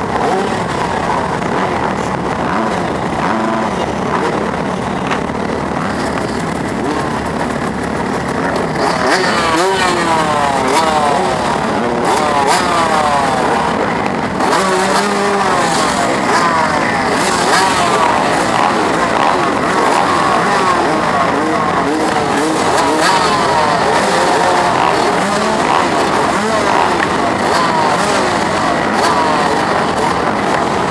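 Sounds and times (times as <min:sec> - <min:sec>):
motocross bike engine revving: 0:00.0 - 0:30.9
other motorbike engines: 0:00.0 - 0:30.9.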